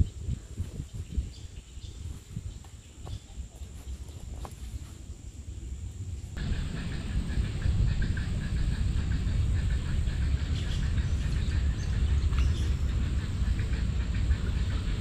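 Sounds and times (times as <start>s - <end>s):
small birds chirping: 0.0s - 15.0s
steady low rumble: 0.0s - 15.0s.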